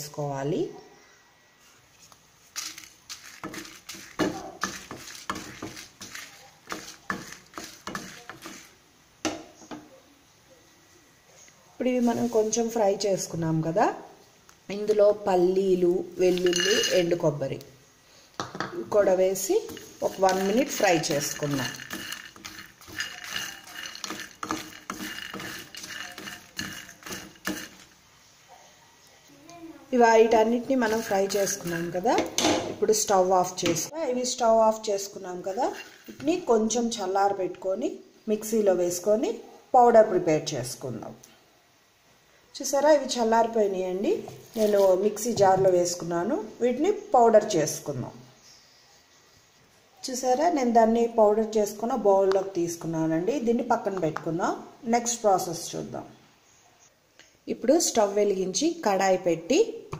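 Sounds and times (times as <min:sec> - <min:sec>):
spatula scraping chillies in a pan: 0:02.4 - 0:08.8, 0:11.9 - 0:12.8, 0:16.2 - 0:17.2, 0:18.9 - 0:28.1, 0:30.2 - 0:32.3, 0:35.3 - 0:36.9, 0:44.2 - 0:45.4.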